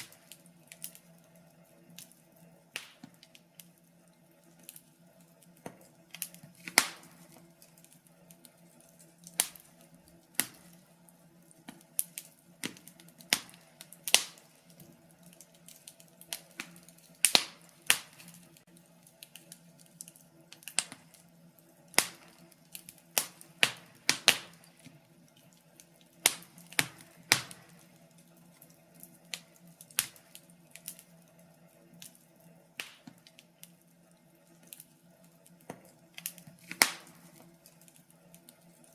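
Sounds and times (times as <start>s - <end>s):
faint steady hum: 0.0s - 38.9s
wood fire crackling: 0.0s - 38.9s.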